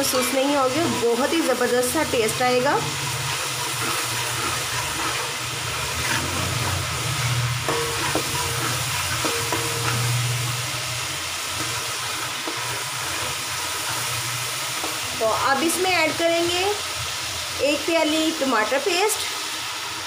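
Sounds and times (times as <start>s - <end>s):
metal spatula scraping pot: 0.0s - 10.5s, 11.5s - 15.0s
onions sizzling in hot oil: 0.0s - 20.0s.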